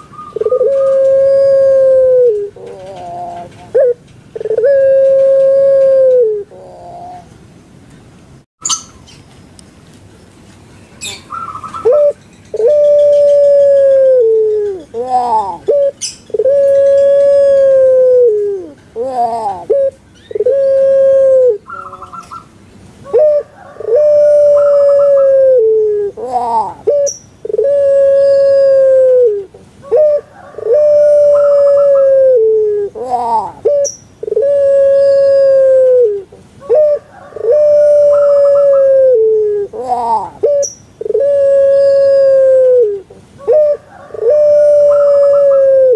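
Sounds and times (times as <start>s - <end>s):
dove cooing: 0.0s - 7.3s, 11.0s - 45.9s
small bird chirping: 8.6s - 9.3s.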